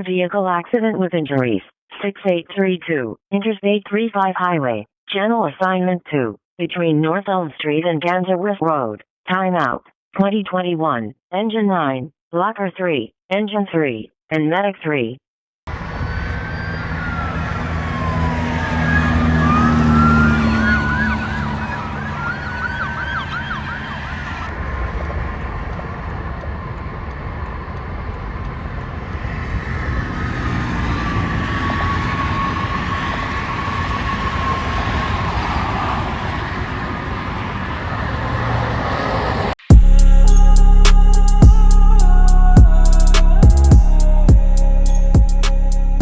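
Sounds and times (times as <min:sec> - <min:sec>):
emergency vehicle sirens: 0:15.7 - 0:39.6
traffic noise: 0:15.7 - 0:46.0.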